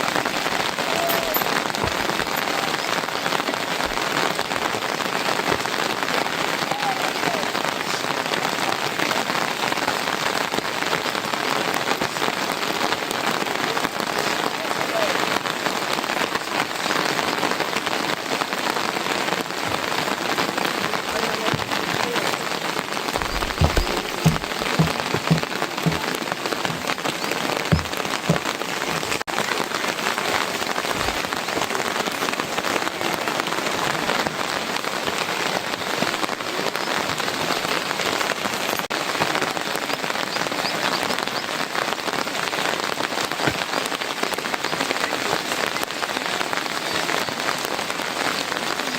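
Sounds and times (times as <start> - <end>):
heavy rain: 0.0 - 48.9
short dull thumps: 23.2 - 26.9, 27.7 - 29.2.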